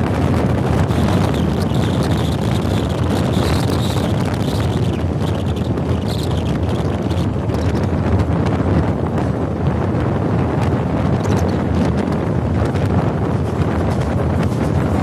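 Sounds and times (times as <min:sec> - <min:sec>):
train wheels rumbling on track: 0:00.0 - 0:15.0
wind buffeting microphone: 0:00.0 - 0:15.0.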